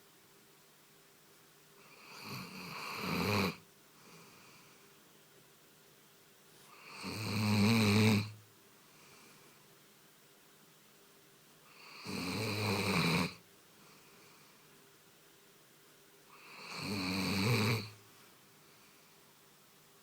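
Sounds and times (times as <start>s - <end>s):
dog snoring: 1.8s - 3.6s, 6.7s - 8.4s, 11.7s - 13.4s, 16.3s - 18.0s.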